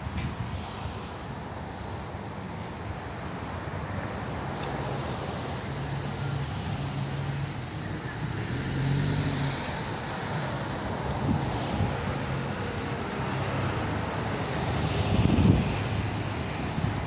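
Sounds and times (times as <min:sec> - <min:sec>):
road noise: 0:00.0 - 0:17.0
vehicle engine hum: 0:03.4 - 0:17.0.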